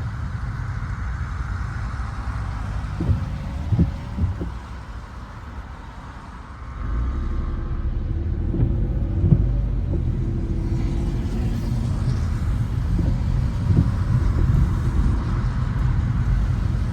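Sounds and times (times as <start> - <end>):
car road and engine rumble: 0.0 - 16.9
soft knocks: 2.9 - 4.6.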